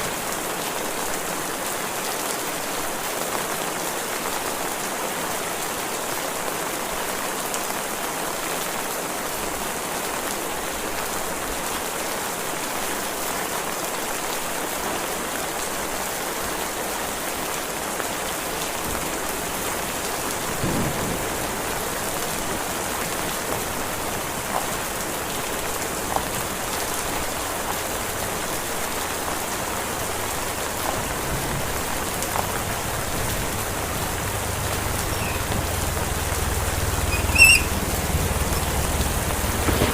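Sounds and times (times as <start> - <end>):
heavy rain falling: 0.0 - 39.9
rain drops ticking: 16.8 - 39.9.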